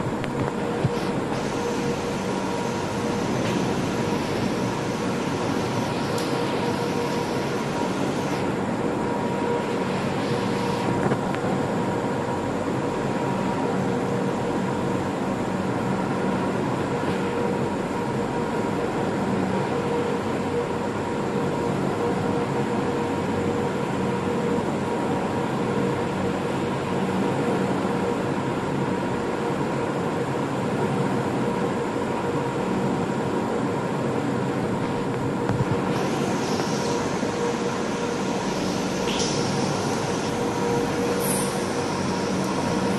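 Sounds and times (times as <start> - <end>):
vacuum pump humming: 0.0 - 11.8, 34.6 - 42.9.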